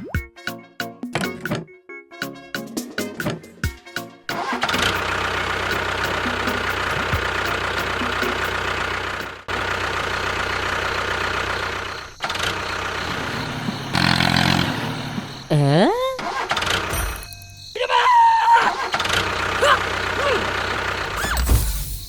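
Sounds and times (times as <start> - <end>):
engine running: 4.3 - 17.8, 18.7 - 22.0.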